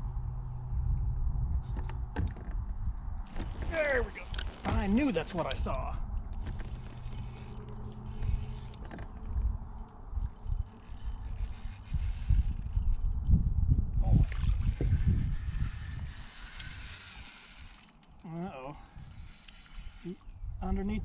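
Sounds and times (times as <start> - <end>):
rod and boat handling noise: 3.3 - 13.4, 14.1 - 18.3
fishing reel cranking: 3.3 - 20.4
low rumbling knocks: 4.4 - 9.7.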